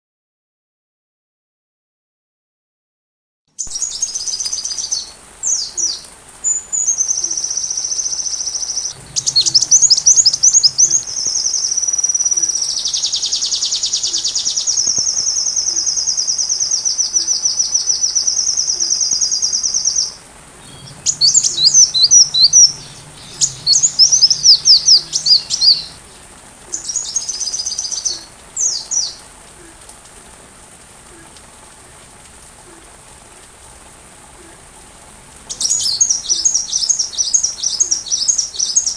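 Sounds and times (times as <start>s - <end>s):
faint steady hiss: 3.6s - 38.9s
sunbird trilling song: 3.8s - 12.0s, 20.4s - 26.2s.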